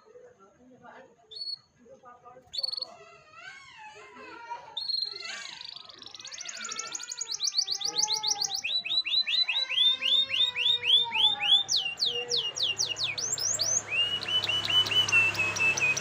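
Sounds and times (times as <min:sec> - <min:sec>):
canary singing: 0:01.3 - 0:01.7, 0:02.4 - 0:16.0.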